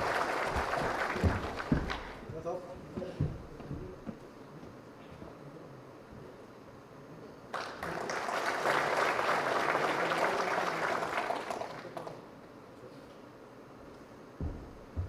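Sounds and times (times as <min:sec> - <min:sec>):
audience clapping: 0:00.0 - 0:02.3, 0:07.5 - 0:12.3.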